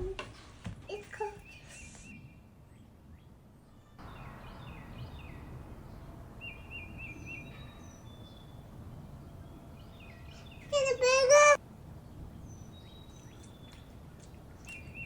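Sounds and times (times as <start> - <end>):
birds singing: 1.2 - 15.0.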